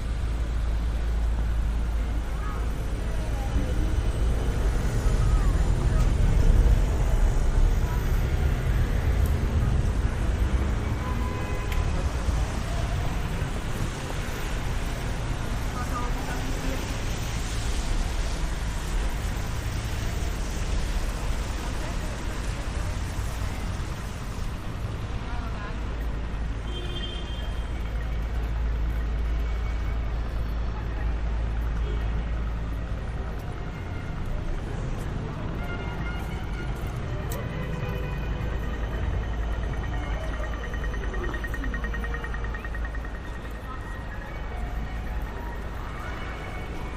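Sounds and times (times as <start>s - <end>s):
traffic rumble: 0.0s - 46.9s
rain and wind hiss: 12.4s - 25.2s.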